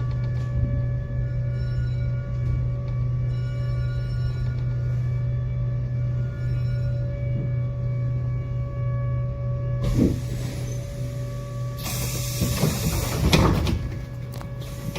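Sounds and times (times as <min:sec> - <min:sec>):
electrical hum: 0:00.0 - 0:14.9
hiss of air: 0:11.8 - 0:13.2.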